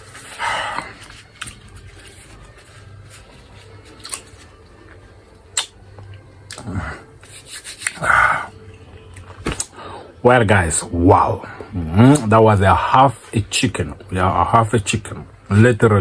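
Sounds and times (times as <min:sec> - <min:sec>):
wet chewing and lip smacks: 0:05.6 - 0:05.8.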